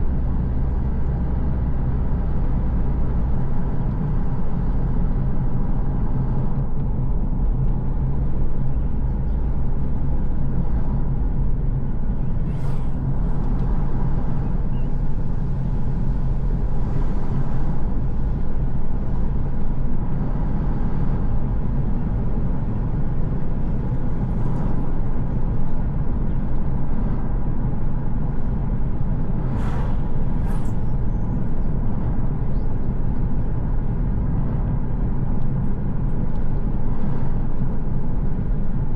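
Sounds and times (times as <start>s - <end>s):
car engine and road rumble: 0.0s - 38.9s
brief hisses: 12.4s - 13.0s, 29.5s - 30.9s.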